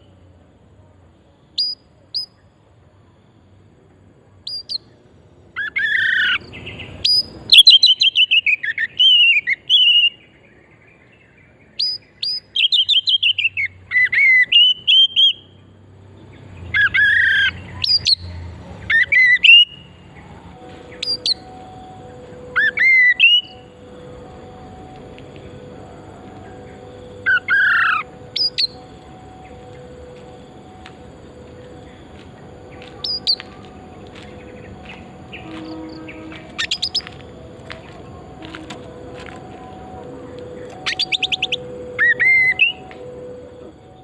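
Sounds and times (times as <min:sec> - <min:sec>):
bird singing whistled phrases: 0:05.6 - 0:10.2, 0:11.8 - 0:15.5, 0:20.9 - 0:23.7, 0:32.7 - 0:33.5, 0:34.4 - 0:37.2, 0:40.8 - 0:42.8.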